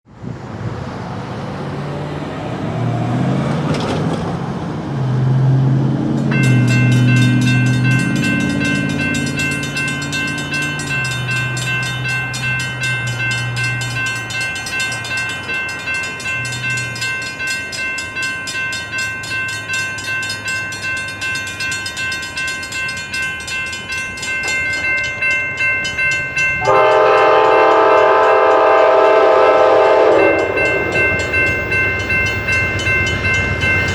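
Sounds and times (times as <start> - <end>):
diesel locomotive engine droning: 0.1 - 33.9
crossing warning bells ringing: 5.8 - 33.9
train horn blowing: 26.6 - 31.0.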